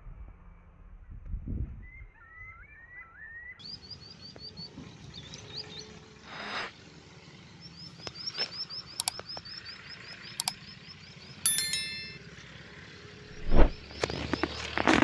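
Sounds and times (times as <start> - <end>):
small birds chirping: 7.2 - 11.9
sharp clicks: 9.0 - 9.4.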